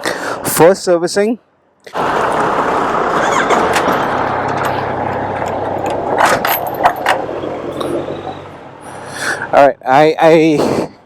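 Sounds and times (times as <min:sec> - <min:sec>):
road noise: 0:00.0 - 0:11.0
vehicle engine humming: 0:01.9 - 0:11.0
sharp clicks and jingles: 0:03.7 - 0:07.4.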